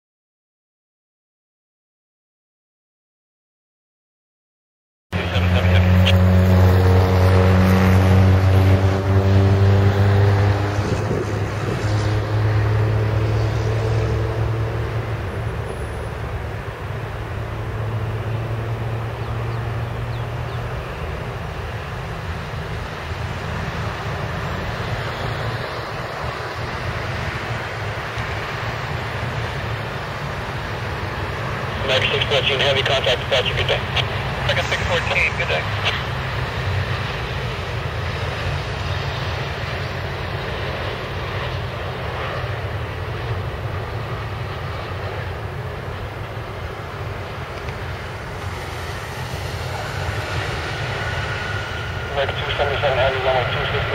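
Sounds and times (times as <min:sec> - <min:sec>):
jet engines rumbling: 0:05.1 - 0:53.9
wind noise: 0:07.8 - 0:13.7.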